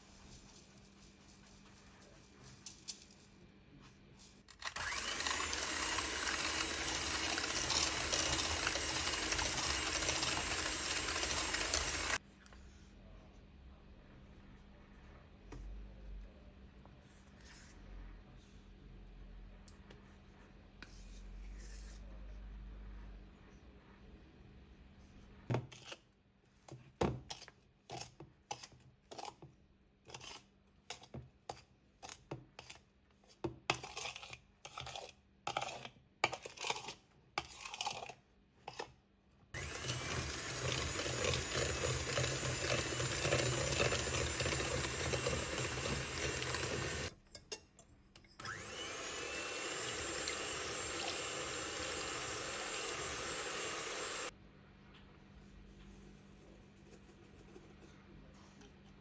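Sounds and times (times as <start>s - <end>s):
kitchen appliance motor running: 4.6s - 12.2s, 39.6s - 47.1s, 48.4s - 54.3s.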